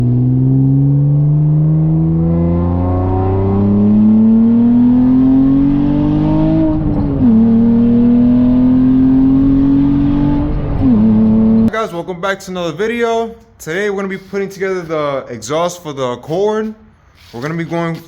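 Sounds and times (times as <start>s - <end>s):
car engine accelerating hard: 0.0s - 11.7s.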